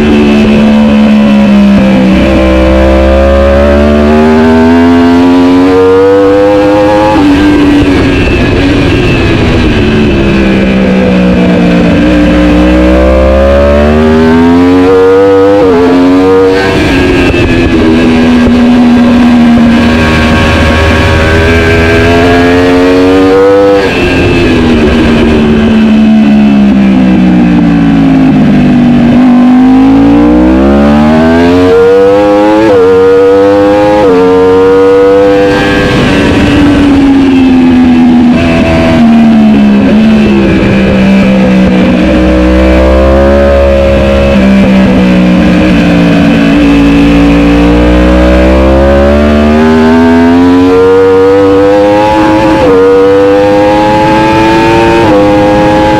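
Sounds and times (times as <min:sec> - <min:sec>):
motorbike engine revving: 0:00.0 - 0:55.9.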